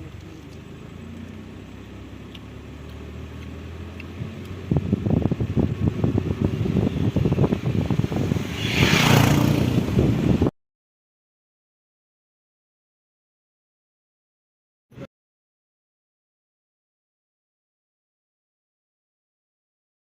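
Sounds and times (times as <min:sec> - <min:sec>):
vehicle rumbling: 0:00.0 - 0:10.5
wind buffeting microphone: 0:04.2 - 0:10.5.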